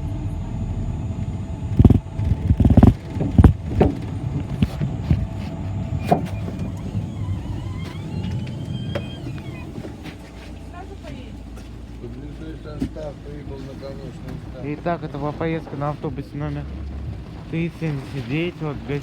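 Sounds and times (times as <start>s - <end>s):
bus engine rumble: 0.0s - 19.0s
knocks and rattles: 1.8s - 10.1s
faint high squeal: 5.9s - 10.8s.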